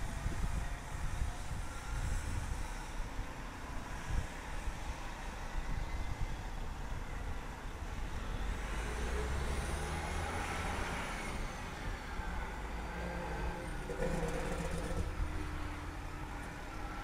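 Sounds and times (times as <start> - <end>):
train rumbling past: 8.4 - 17.0.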